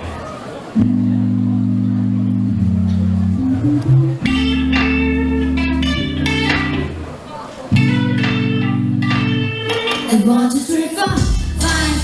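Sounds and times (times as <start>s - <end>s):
held bass guitar notes: 0.8s - 10.2s
guitar chords: 0.8s - 12.0s.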